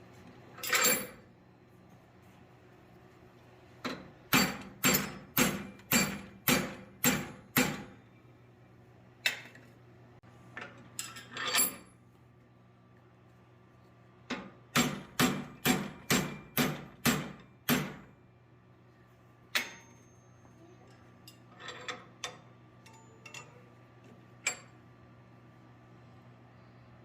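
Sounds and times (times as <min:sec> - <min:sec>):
steady low hum: 0:00.0 - 0:27.0
hammer striking steel on anvil: 0:03.9 - 0:08.0, 0:14.8 - 0:18.1, 0:19.5 - 0:20.1.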